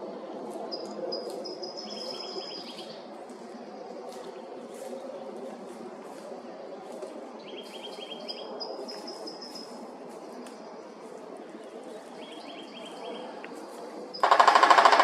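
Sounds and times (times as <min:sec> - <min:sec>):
songbirds trilling: 0:00.0 - 0:15.0
steady background noise: 0:00.0 - 0:15.0.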